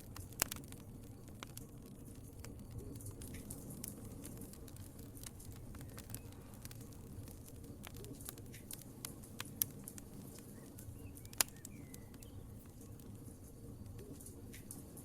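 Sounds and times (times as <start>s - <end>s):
loud fire pops: 0.0s - 15.0s
wood fire crackling: 0.0s - 15.0s.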